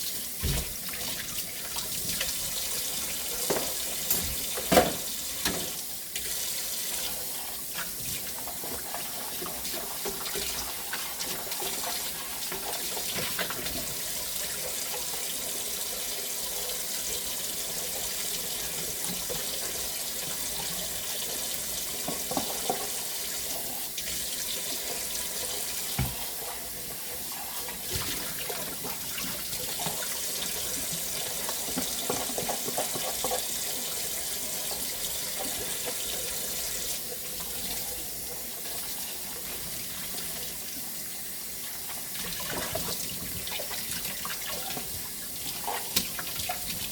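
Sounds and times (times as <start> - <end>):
tap water running into sink: 0.0 - 46.9.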